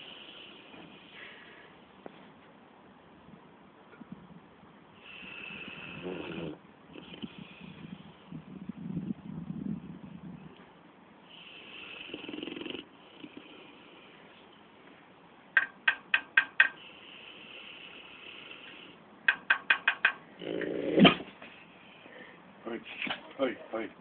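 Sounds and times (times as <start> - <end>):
dog snoring and breathing: 5.0 - 8.2, 11.3 - 14.4.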